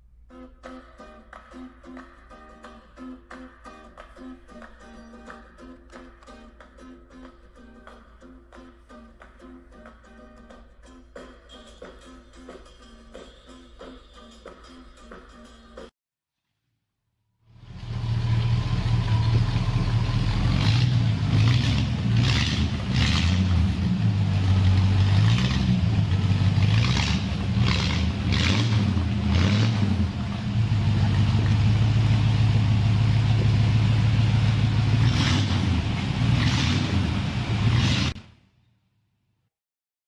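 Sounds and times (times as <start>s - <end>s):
engine running: 17.5s - 38.2s.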